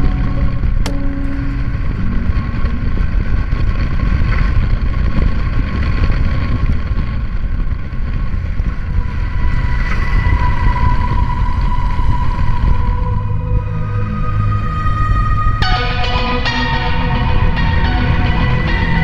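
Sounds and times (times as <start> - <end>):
scooter road and engine rumble: 0.0 - 9.1
wind rushing on microphone: 0.0 - 15.7
faint steady tones: 0.0 - 19.0.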